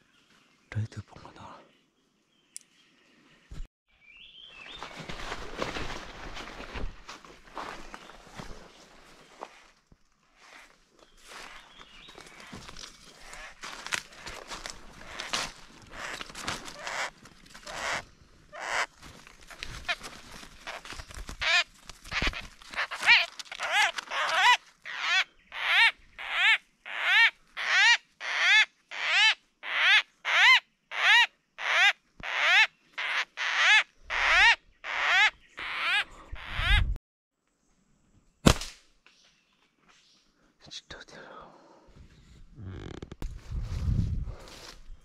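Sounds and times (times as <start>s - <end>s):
irregular rustling: 4.8s - 17.8s
bird calling: 11.1s - 37.0s.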